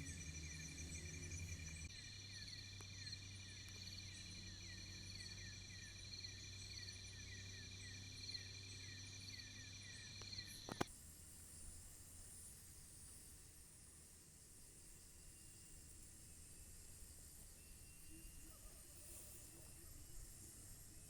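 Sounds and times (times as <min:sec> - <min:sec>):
insect chirp: 0:00.0 - 0:21.0
night insects droning: 0:00.0 - 0:21.0
click: 0:10.2 - 0:10.9.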